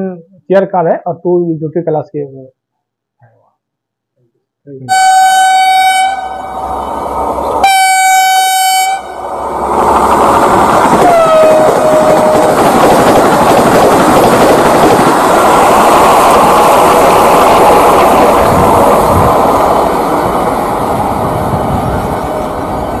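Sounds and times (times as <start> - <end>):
train horn: 4.9 - 6.6, 7.6 - 9.3, 11.0 - 12.5
train wheels rushing on rails: 5.5 - 23.0.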